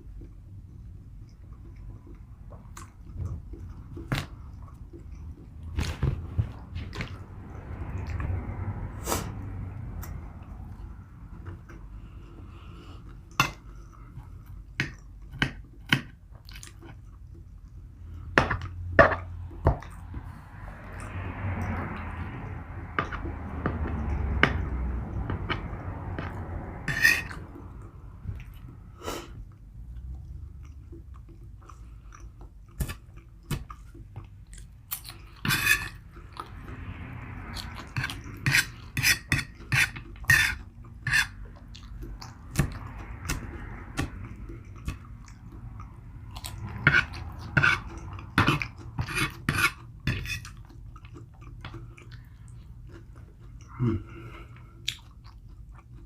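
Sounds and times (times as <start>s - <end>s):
person chewing: 0.0s - 8.4s, 9.0s - 56.0s
mouth clicks and smacks: 54.8s - 56.0s.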